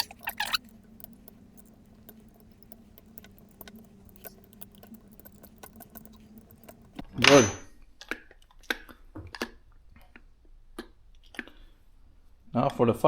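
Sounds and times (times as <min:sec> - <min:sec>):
metallic clicks and rattles: 0:00.0 - 0:07.4.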